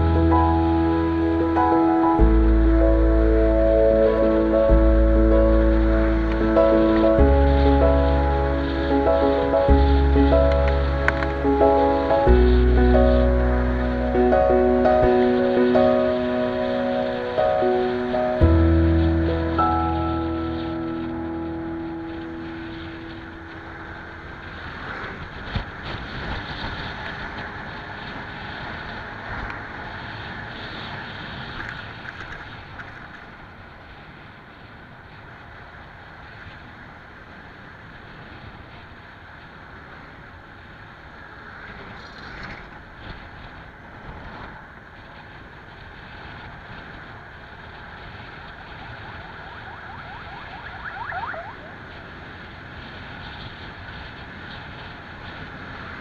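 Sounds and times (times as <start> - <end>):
short rising tone: 0.0 - 23.5
road and wind rush: 0.0 - 56.0.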